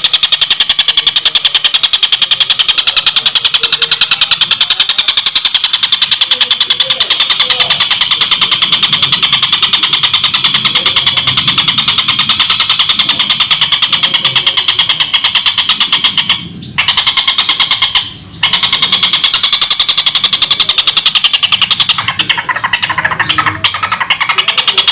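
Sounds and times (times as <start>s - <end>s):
kingfisher chattering call: 19.3s - 24.9s.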